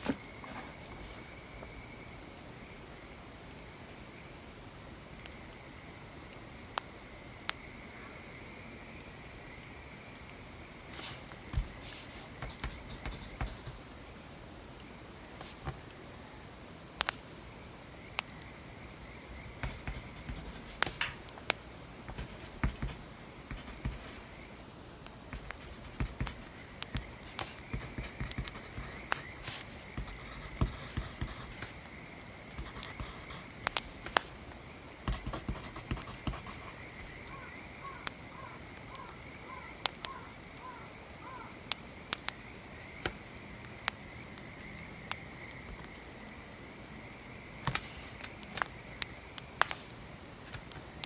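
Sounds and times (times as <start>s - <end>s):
pencil scratching on paper: 0.0s - 1.4s, 11.0s - 13.8s, 19.6s - 21.2s, 22.1s - 24.3s, 25.4s - 31.8s, 32.6s - 34.2s, 35.1s - 37.2s.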